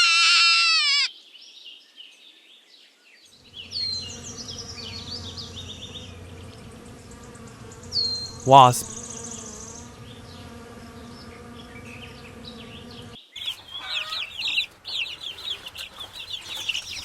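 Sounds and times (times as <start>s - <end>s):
wasp buzzing: 3.4s - 17.0s
chicks peeping: 11.3s - 17.0s.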